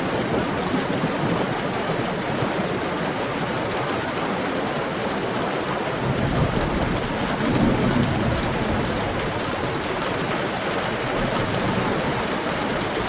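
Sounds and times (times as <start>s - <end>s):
heavy rain: 0.0s - 13.0s
low rumble of thunder: 6.0s - 13.0s.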